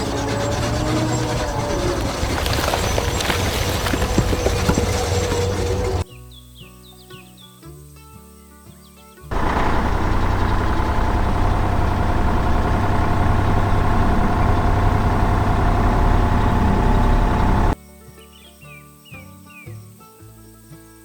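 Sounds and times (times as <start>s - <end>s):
heavy vehicle engine running: 0.0s - 6.0s, 9.3s - 17.8s.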